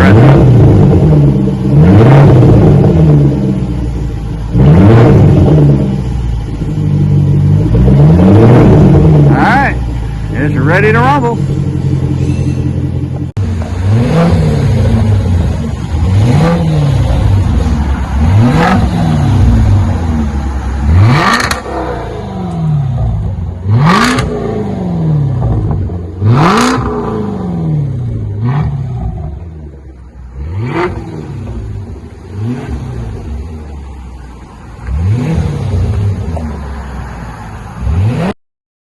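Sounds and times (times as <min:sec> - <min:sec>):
car engine revving: 0:00.0 - 0:38.4.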